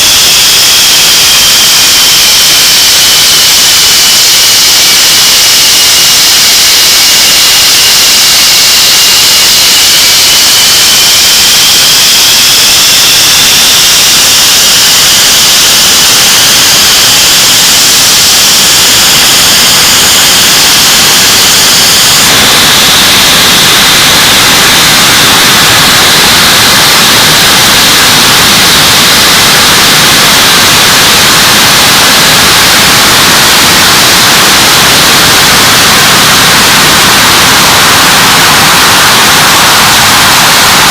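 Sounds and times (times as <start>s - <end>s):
jet engine roar with whine: 0.0s - 40.9s.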